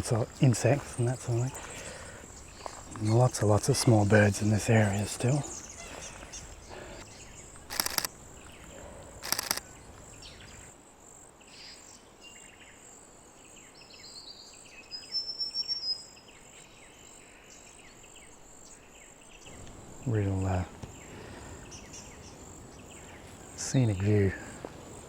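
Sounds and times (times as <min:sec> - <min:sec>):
small birds chirping: 0:00.0 - 0:10.7, 0:17.6 - 0:25.0
high insect drone: 0:00.0 - 0:10.8
camera shutter bursts: 0:07.7 - 0:08.1, 0:09.2 - 0:09.6.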